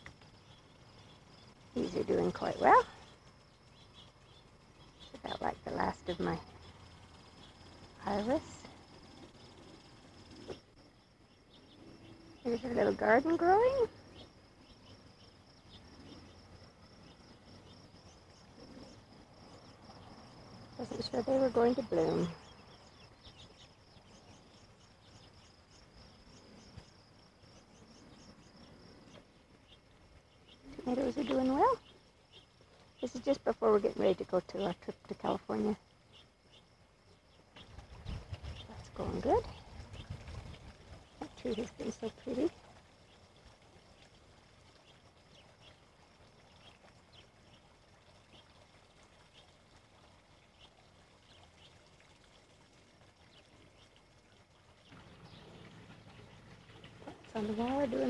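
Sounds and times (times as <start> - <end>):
cricket chirping: 0.0 - 58.0
low steady hiss: 0.0 - 58.0.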